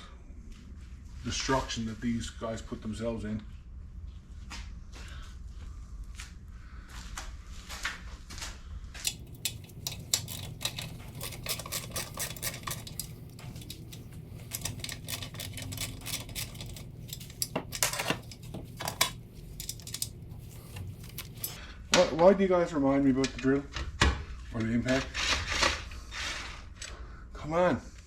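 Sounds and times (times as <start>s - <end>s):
low shop hum: 0.0s - 28.0s
metal tools clinking: 9.0s - 21.6s.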